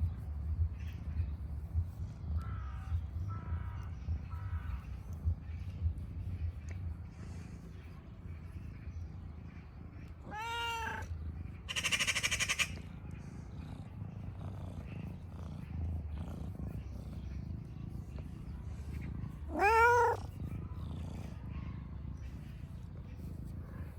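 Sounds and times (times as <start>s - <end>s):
cat meowing: 10.2s - 11.1s, 19.4s - 20.4s.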